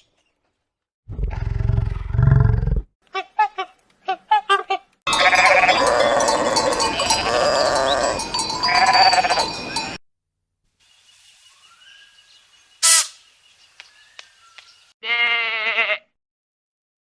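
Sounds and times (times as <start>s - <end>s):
farm animals calling: 5.1s - 10.0s.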